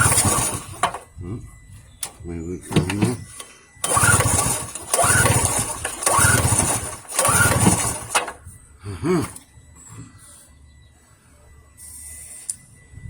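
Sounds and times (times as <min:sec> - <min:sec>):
generator recoil starter pulls: 0:00.0 - 0:01.1, 0:02.0 - 0:08.4.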